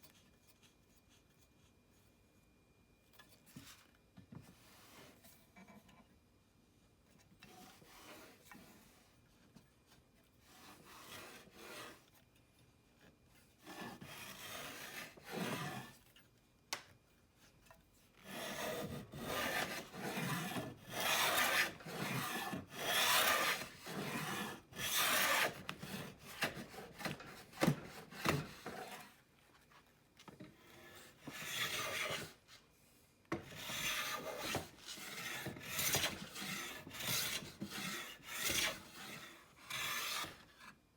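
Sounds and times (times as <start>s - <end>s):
hand plane shaving wood: 10.5s - 12.0s, 13.7s - 16.0s, 18.2s - 29.1s, 30.6s - 32.4s, 33.4s - 40.4s.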